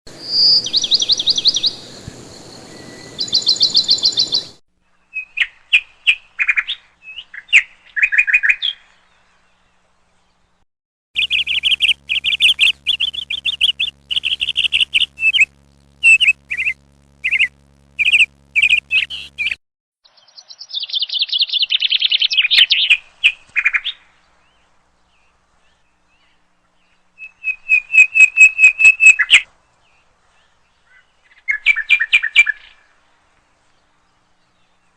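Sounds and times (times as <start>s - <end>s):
songbird chirping and trilling: 0.1s - 10.5s, 11.2s - 32.9s
faint low hum: 11.2s - 19.6s.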